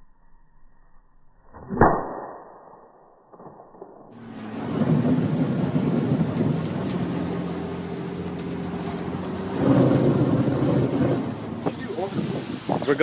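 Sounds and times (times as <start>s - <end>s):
rush of noise: 4.1s - 13.0s
vehicle engine running: 4.2s - 13.0s.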